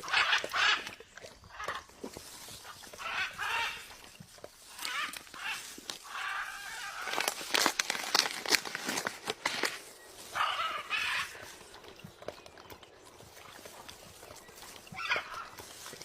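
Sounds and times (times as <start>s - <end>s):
beak clicks and crunches: 0.0s - 16.0s
bird harsh calls: 10.2s - 11.6s.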